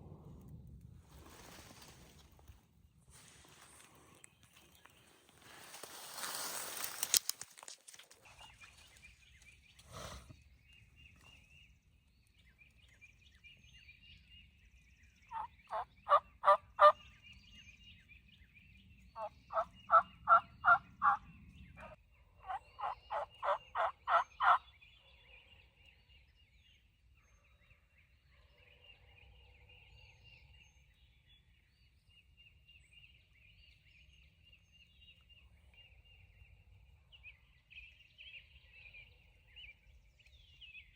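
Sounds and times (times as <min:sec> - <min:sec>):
rustling: 0:01.1 - 0:08.8
wild turkey yelping: 0:15.3 - 0:17.0, 0:19.2 - 0:21.2, 0:21.8 - 0:24.6.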